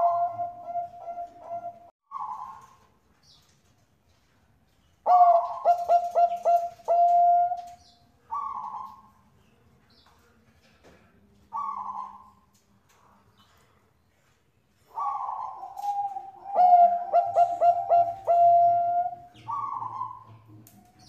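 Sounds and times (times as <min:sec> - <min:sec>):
dove cooing: 0:00.0 - 0:02.8, 0:05.1 - 0:09.1, 0:11.5 - 0:12.4, 0:14.9 - 0:21.0.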